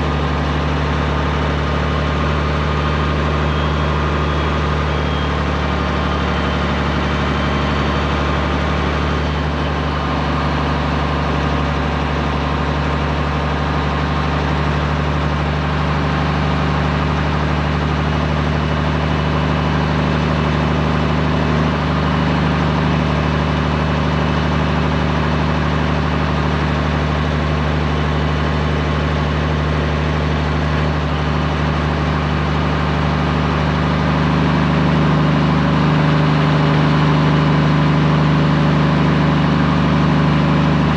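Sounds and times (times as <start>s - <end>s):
truck diesel engine running: 0.0s - 40.9s.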